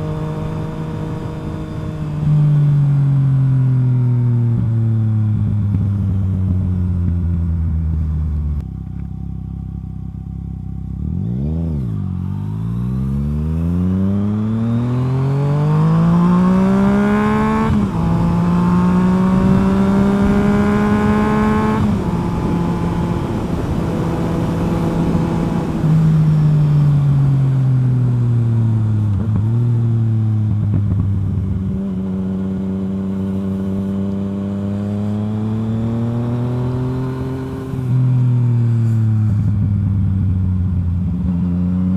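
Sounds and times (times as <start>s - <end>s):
motorcycle engine revving: 9.8s - 41.9s.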